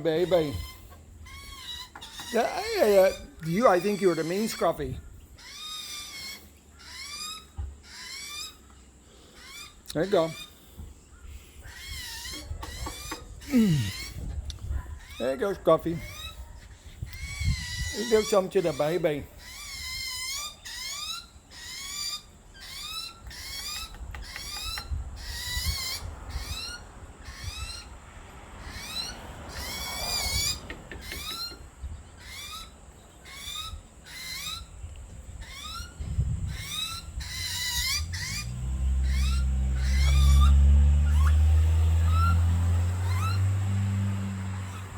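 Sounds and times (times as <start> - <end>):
young bird begging squawks: 11.6 - 27.9, 35.4 - 41.4.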